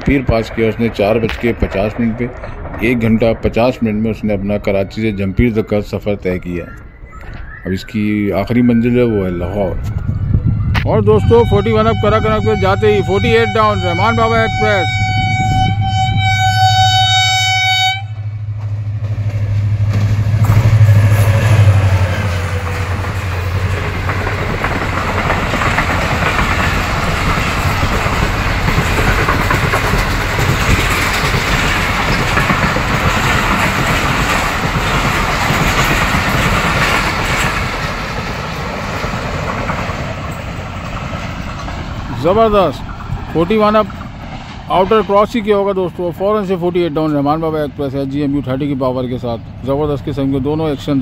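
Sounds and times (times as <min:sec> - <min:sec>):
diesel locomotive engine: 0:00.0 - 0:51.0
train coaches rumbling on rails: 0:00.0 - 0:51.0
locomotive horn: 0:10.8 - 0:18.6.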